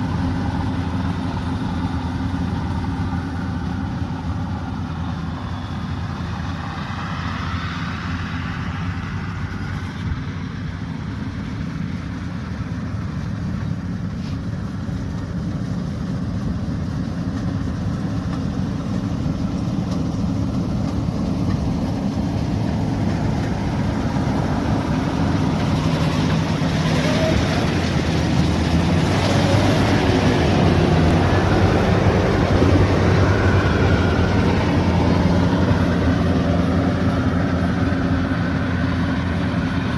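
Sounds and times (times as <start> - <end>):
harvester diesel engine humming: 0.0 - 39.9.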